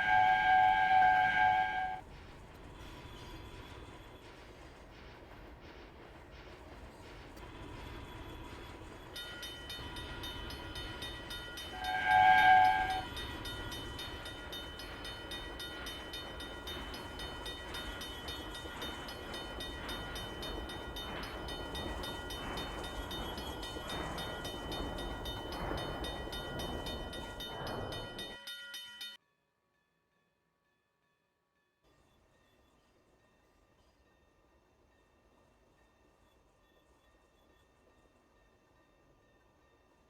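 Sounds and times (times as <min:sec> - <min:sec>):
train horn blast: 0:00.0 - 0:02.0, 0:11.7 - 0:13.2
train rumbling: 0:00.0 - 0:29.2.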